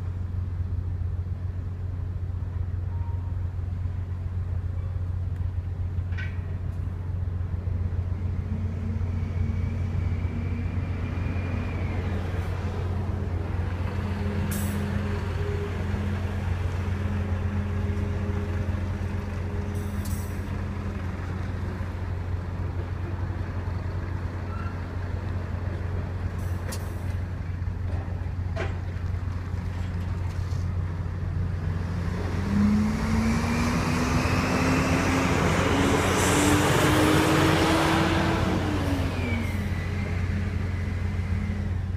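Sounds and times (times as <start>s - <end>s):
low drone of engines: 0.0s - 41.9s
road vehicle engine speeding up: 31.6s - 41.8s.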